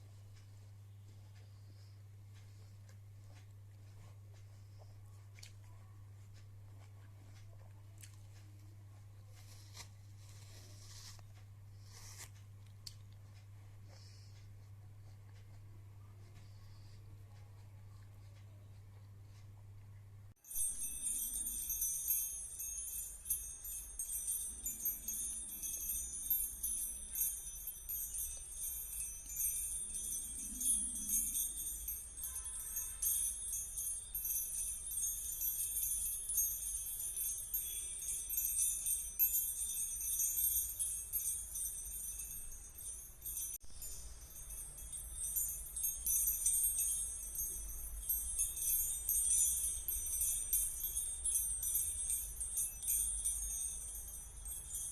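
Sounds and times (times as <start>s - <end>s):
jingle bells shaken: 20.4s - 54.9s.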